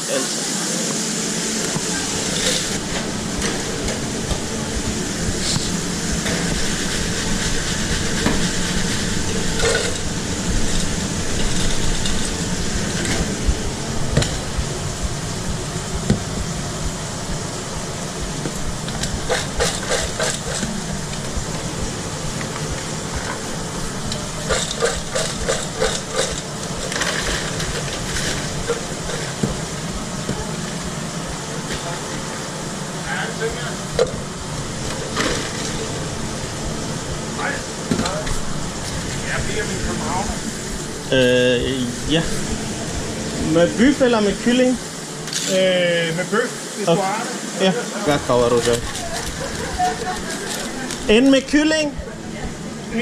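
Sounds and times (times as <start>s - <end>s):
food sizzling in frying: 0.0s - 52.0s
cooking utensils clinking and scraping: 24.2s - 29.4s.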